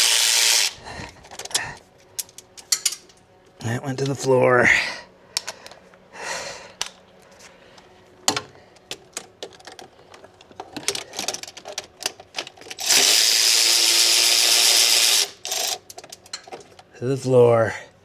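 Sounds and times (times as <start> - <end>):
power tool running: 0.0 - 0.8, 12.8 - 15.8
hand tools and metal parts clinking: 0.3 - 3.2, 8.3 - 16.9.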